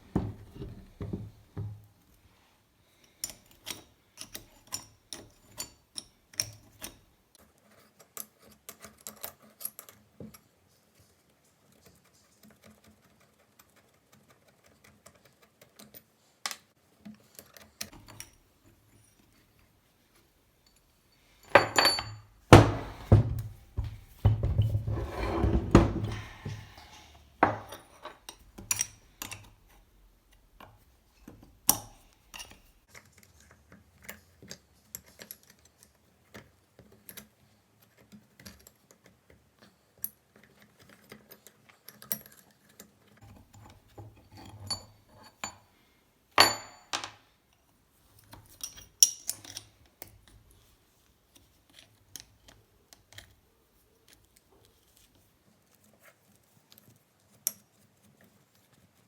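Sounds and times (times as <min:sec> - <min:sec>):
metal parts clinking: 0:21.4 - 0:23.1.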